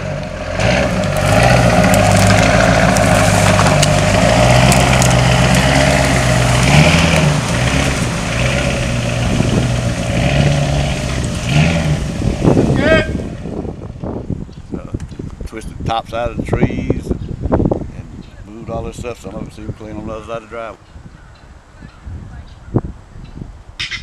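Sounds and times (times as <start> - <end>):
engine running: 0.0 - 13.7.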